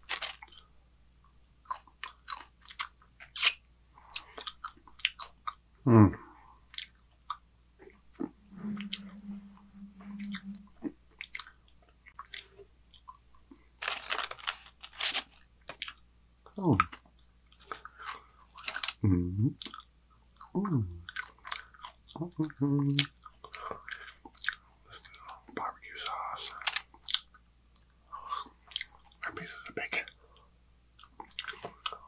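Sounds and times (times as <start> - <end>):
man chewing crunchy food: 1.6 - 5.6, 6.6 - 8.4, 11.2 - 16.0, 19.6 - 22.2, 22.9 - 24.6, 26.5 - 29.4, 30.0 - 32.0
man humming mmm: 5.9 - 6.3, 8.2 - 10.9, 19.0 - 19.6, 20.6 - 21.1, 22.2 - 23.1
short falling voiced sound: 8.4 - 10.7.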